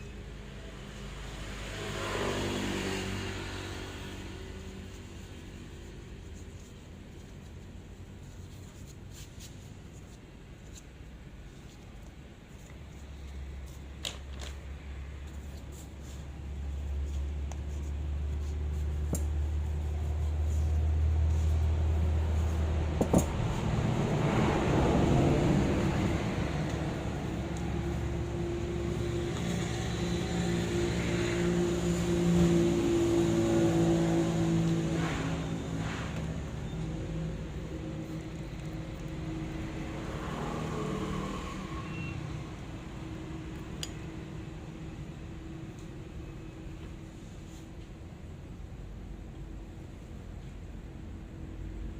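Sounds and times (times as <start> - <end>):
low mechanical hum: 0.0 - 51.9
road traffic rumble: 0.0 - 51.9.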